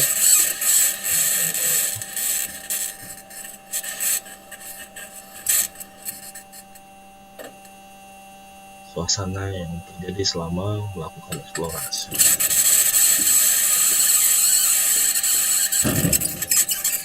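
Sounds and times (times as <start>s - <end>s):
steady hum: 0.0s - 17.0s
wheels scraping on ground: 11.5s - 17.0s
short scrapes and clanks: 11.7s - 17.0s.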